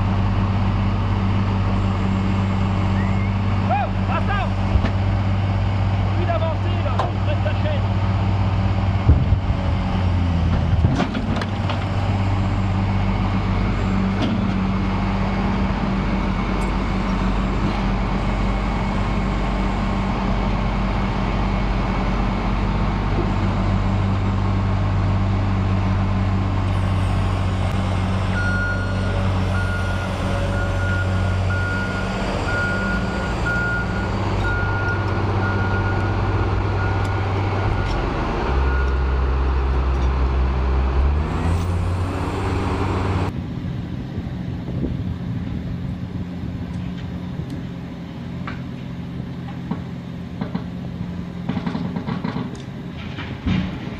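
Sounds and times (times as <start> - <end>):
heavy vehicle engine running: 0.0 - 53.9
reversing alarm beeping: 28.3 - 38.0, 38.6 - 39.1.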